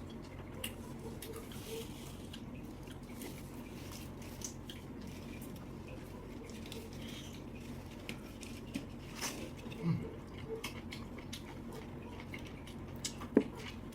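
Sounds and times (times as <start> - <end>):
steady low hum: 0.0 - 13.9
wet chewing and mouth smacks: 6.4 - 13.9.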